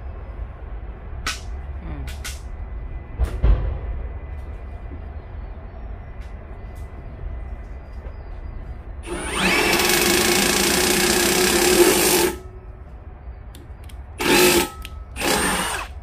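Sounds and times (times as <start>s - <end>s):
electric drill boring: 9.0s - 12.4s, 14.2s - 16.0s.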